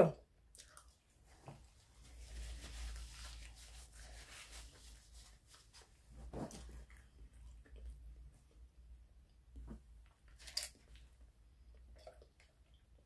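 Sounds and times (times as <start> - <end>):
chewing food: 0.5 - 1.2
paper napkin rustling: 1.8 - 6.8.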